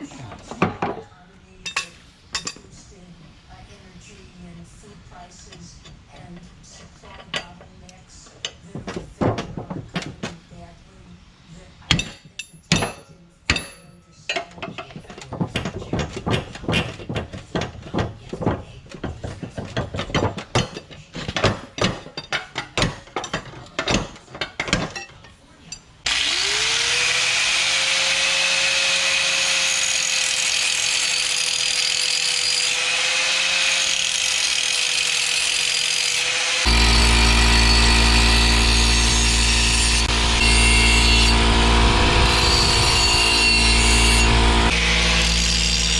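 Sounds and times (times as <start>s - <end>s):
motor whining: 26.1s - 29.8s, 35.8s - 45.9s.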